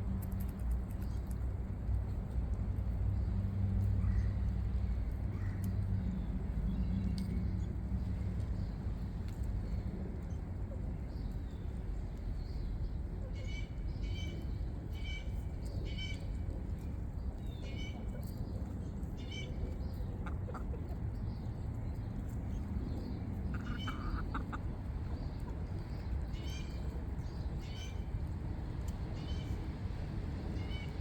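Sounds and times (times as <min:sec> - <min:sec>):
chickens clucking: 0:20.2 - 0:21.2, 0:23.3 - 0:26.1.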